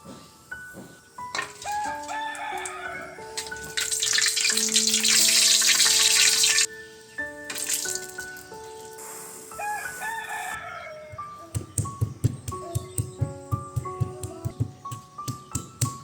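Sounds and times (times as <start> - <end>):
background music: 0.0 - 16.0
tap water running into sink: 3.4 - 6.7, 7.5 - 8.2.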